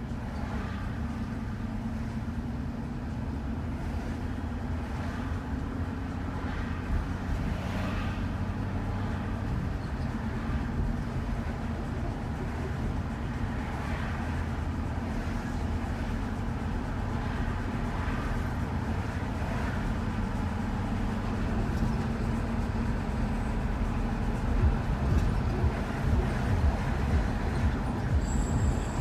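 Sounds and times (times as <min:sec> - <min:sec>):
van road and engine rumble: 0:00.0 - 0:29.0
low hum: 0:22.8 - 0:29.0.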